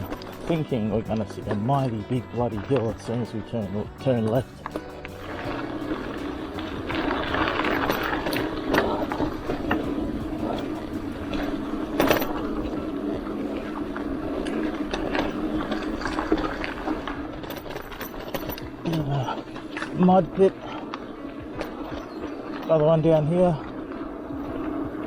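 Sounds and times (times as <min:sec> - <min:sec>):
bike rolling on dirt: 0:00.0 - 0:25.0
rattles and ticks: 0:00.0 - 0:25.0
freewheel buzzing: 0:03.6 - 0:22.8.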